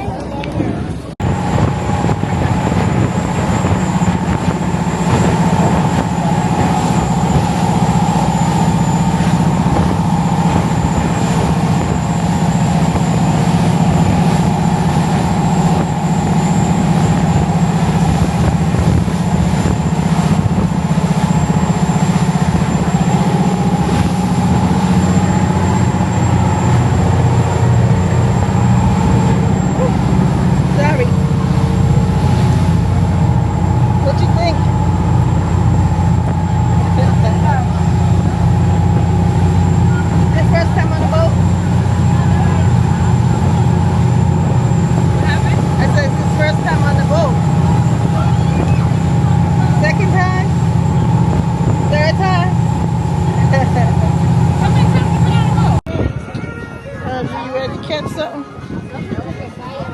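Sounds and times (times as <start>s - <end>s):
boat engines droning: 0.0s - 59.9s.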